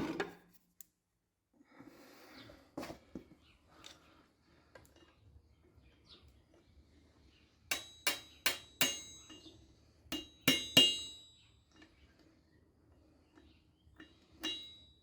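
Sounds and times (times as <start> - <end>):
hammer striking steel anvil: 7.7 - 9.5, 10.1 - 11.4, 14.4 - 15.0.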